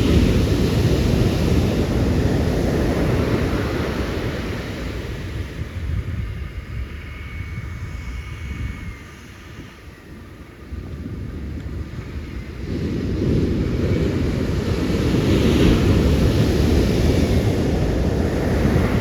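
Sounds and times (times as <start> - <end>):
ocean waves breaking: 0.0 - 5.6, 12.7 - 19.0
wind on microphone: 0.0 - 19.0.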